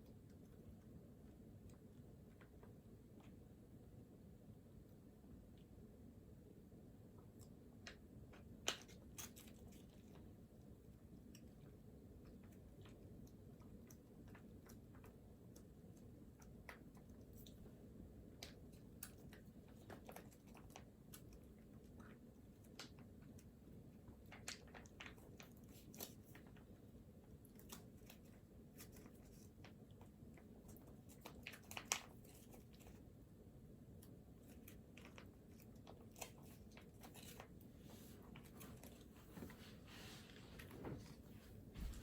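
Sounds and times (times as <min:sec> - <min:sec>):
faint small clicks and taps: 0:07.1 - 0:26.8, 0:27.4 - 0:33.1.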